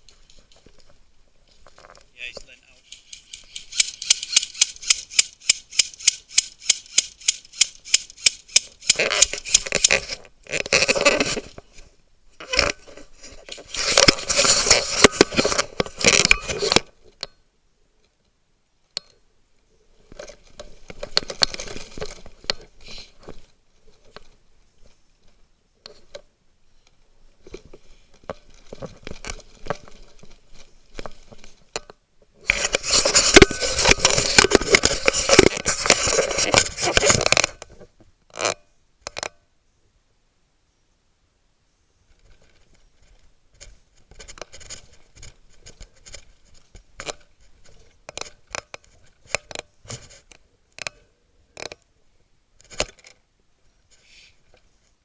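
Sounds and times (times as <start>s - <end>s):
scraping and crunching movement: 8.6s - 17.1s, 20.0s - 25.0s, 27.4s - 38.6s.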